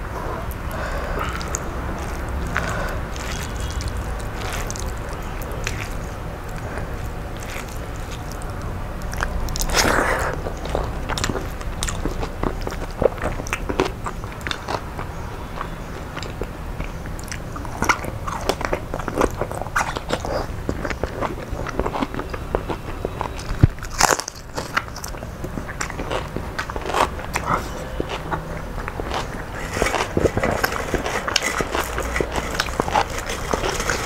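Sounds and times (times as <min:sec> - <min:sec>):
chewing with sharp crunches: 0:00.0 - 0:34.0
crisp fried leaves crackling: 0:00.0 - 0:34.0.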